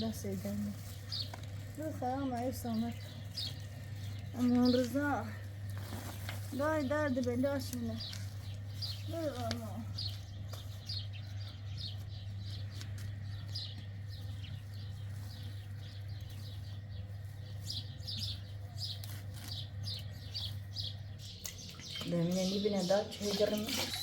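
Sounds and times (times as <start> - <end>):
small birds chirping: 0.0 - 24.0
steady low hum: 0.0 - 24.0.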